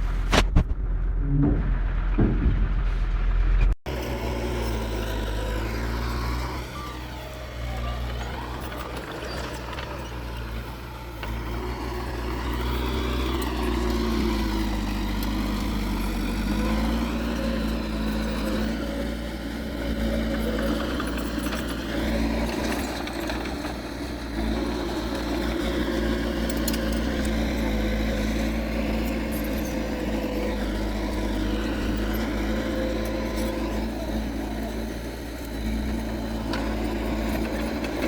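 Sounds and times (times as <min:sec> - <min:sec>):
diesel earthmoving machinery running: 0:00.0 - 0:38.0.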